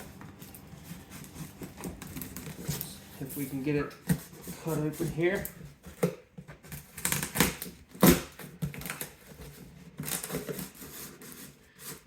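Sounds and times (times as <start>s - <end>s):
cardboard flaps rustling: 0.0s - 12.0s
knife cutting cardboard box: 4.0s - 12.0s.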